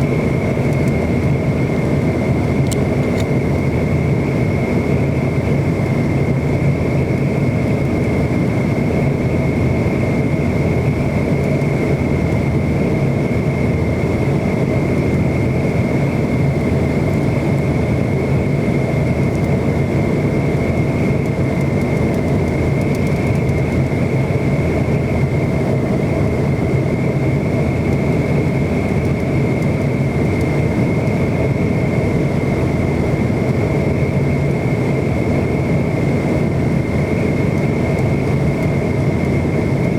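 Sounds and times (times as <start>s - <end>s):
jet engines roaring with whine: 0.0s - 39.9s.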